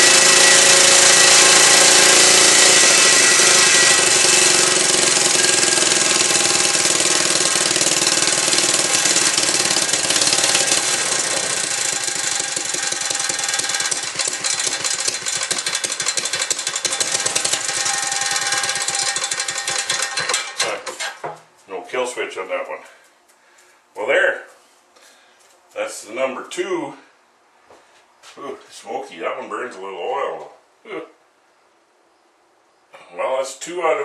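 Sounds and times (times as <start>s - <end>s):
small gas engine running: 0.0s - 21.0s.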